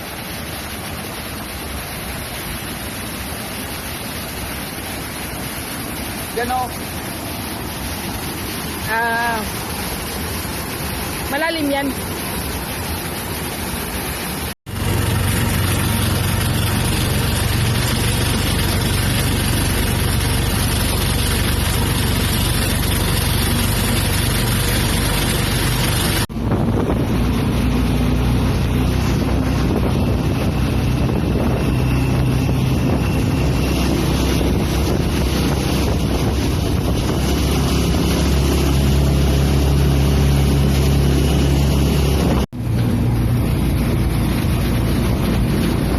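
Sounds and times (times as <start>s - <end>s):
motorboat engine drone: 0.0s - 45.9s
water rushing around hull: 0.0s - 45.9s
wind buffeting microphone: 20.8s - 45.9s.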